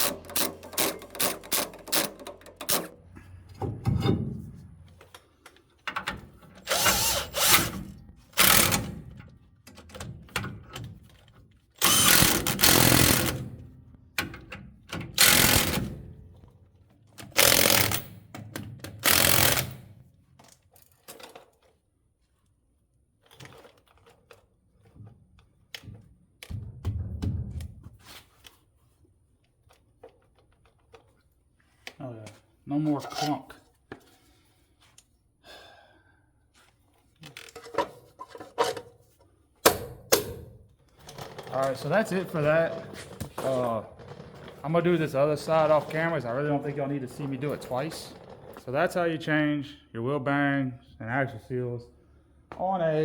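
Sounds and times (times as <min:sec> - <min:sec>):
tool clatter: 0:00.0 - 0:03.0, 0:37.2 - 0:48.8
power tool bursts: 0:06.6 - 0:08.9, 0:11.8 - 0:13.5, 0:15.2 - 0:16.0, 0:17.4 - 0:18.1, 0:19.0 - 0:19.8.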